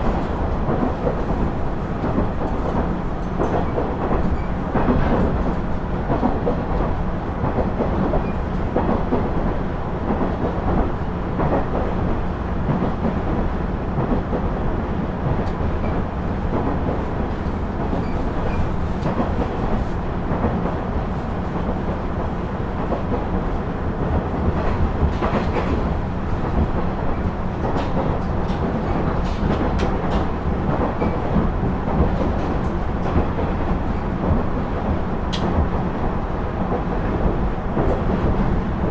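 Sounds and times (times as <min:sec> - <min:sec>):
diesel railcar rumble: 0:00.0 - 0:38.9.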